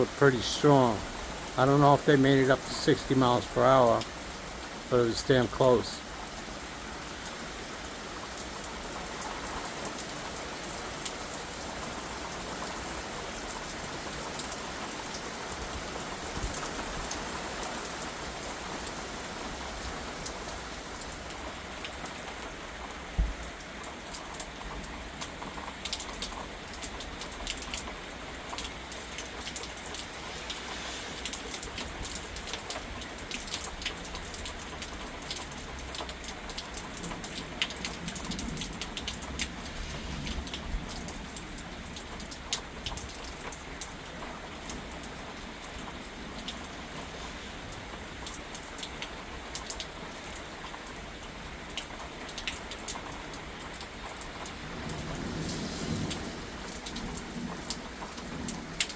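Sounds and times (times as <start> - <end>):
rain hitting surfaces: 0.0 - 58.9
sharp drip ticks: 19.8 - 58.9.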